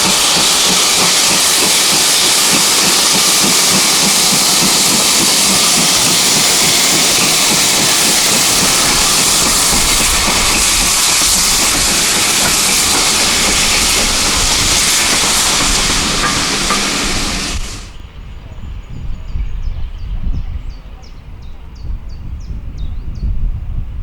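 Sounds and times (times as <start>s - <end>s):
steam locomotive hissing steam: 0.0s - 18.0s.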